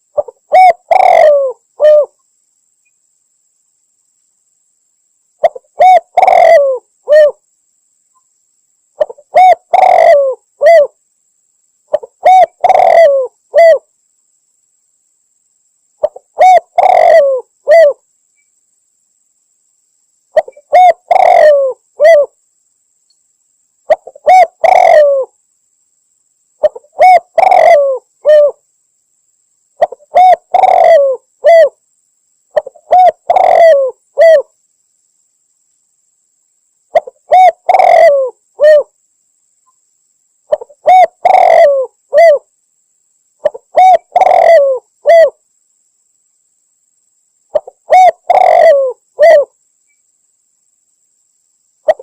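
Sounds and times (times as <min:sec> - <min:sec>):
dove cooing: 0:00.0 - 0:02.2, 0:05.4 - 0:07.4, 0:09.0 - 0:11.0, 0:11.9 - 0:13.9, 0:16.0 - 0:18.0, 0:20.4 - 0:22.4, 0:23.9 - 0:25.4, 0:26.6 - 0:28.6, 0:29.8 - 0:31.8, 0:32.5 - 0:34.5, 0:36.9 - 0:38.9, 0:40.5 - 0:42.5, 0:43.4 - 0:45.4, 0:47.5 - 0:49.6.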